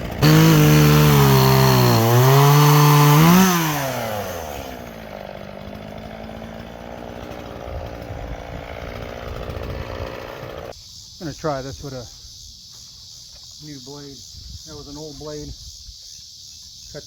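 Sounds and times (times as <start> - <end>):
chainsaw cutting wood: 0.0 - 10.7.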